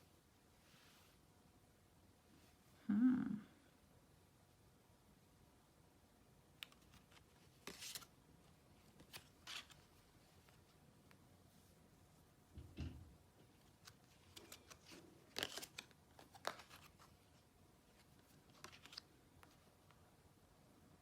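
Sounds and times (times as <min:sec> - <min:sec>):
cards clicking and rustling: 0:06.6 - 0:08.1, 0:09.0 - 0:09.9, 0:13.5 - 0:20.0.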